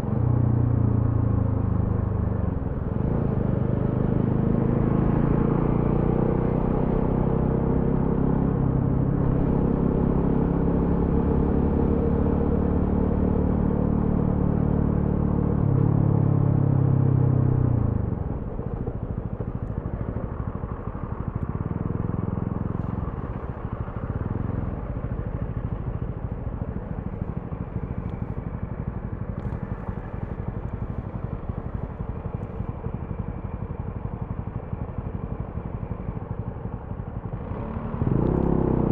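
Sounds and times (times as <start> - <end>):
motorcycle engine running: 0.0 - 38.9
motorcycle throttle blips: 17.8 - 33.3.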